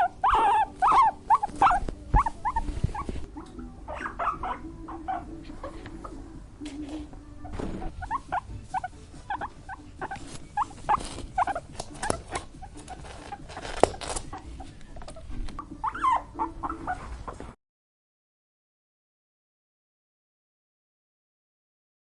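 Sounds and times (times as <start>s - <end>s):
small animal squeaking: 0.0s - 6.2s, 7.4s - 17.4s.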